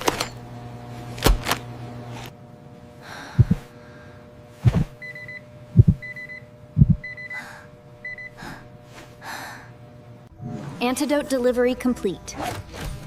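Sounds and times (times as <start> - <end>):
steady hum: 0.0 - 13.0
low heartbeat thumps: 3.4 - 3.7, 5.8 - 6.1, 6.8 - 7.1.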